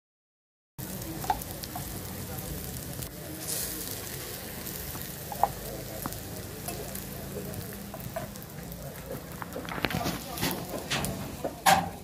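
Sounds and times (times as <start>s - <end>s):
omelette sizzling in hot oil: 0.8s - 12.0s.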